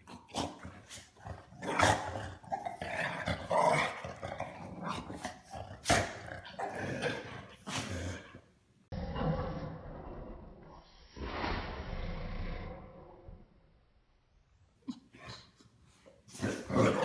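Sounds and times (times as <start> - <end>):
dogs growling: 0.0 - 10.6, 16.3 - 17.0.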